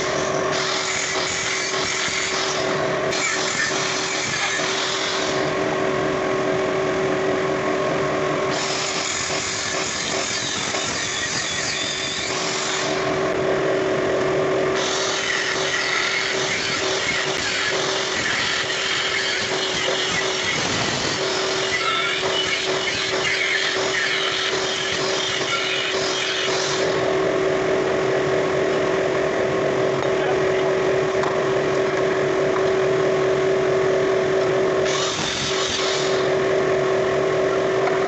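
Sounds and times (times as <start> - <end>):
power tool whining: 8.5 - 13.3, 14.7 - 27.4, 34.8 - 36.5.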